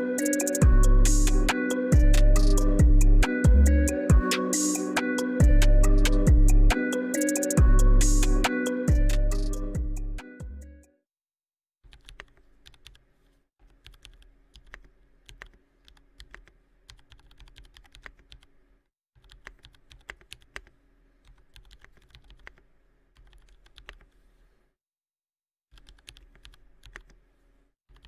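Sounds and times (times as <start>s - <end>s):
mechanical keyboard typing: 13.8s - 18.6s, 19.2s - 22.6s, 23.2s - 24.1s, 25.8s - 27.2s.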